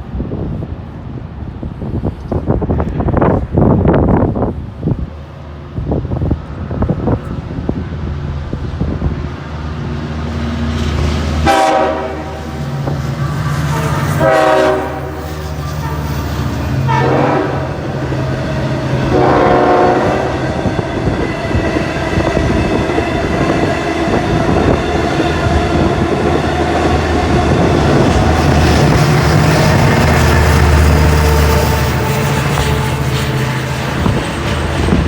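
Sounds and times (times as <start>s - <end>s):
train rumbling by: 0.0s - 35.0s
train horn blasts: 11.4s - 18.0s, 18.9s - 21.6s, 22.4s - 35.0s.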